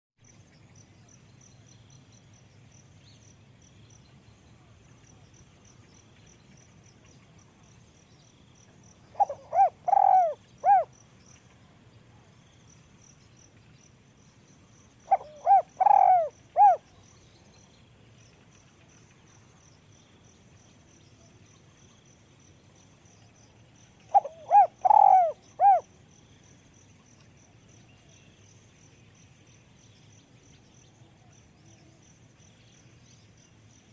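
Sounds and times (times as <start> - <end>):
faint insect chirping: 0.2 - 33.9
dove cooing: 9.1 - 10.9, 15.1 - 16.8, 24.1 - 25.9.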